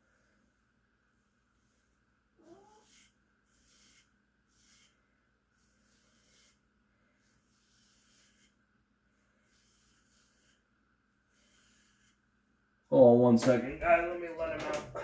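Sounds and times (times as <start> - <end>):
razor scraping hair: 2.4 - 12.3.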